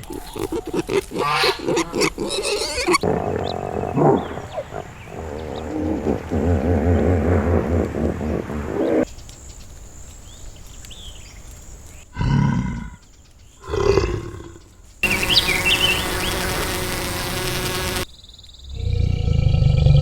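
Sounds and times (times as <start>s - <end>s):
high chirps: 15.0s - 18.1s
steady hiss: 15.0s - 18.1s.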